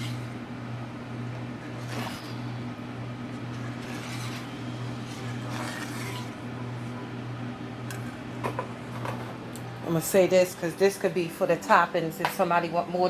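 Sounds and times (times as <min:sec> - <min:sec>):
spoon stirring sauce in a pan: 0:01.4 - 0:06.4
soft scraping strokes: 0:01.7 - 0:02.5, 0:03.5 - 0:06.4.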